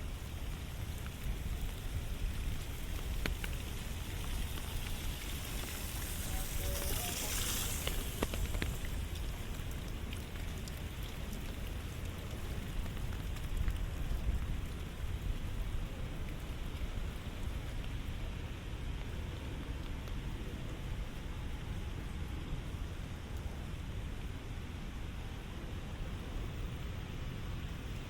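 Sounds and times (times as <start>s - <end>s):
steady rain falling: 0.0s - 28.0s
bright hiss: 5.3s - 8.9s.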